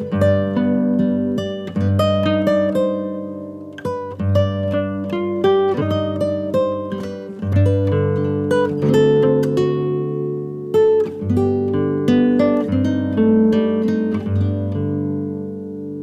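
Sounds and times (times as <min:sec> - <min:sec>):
acoustic guitar picking: 0:00.0 - 0:16.0.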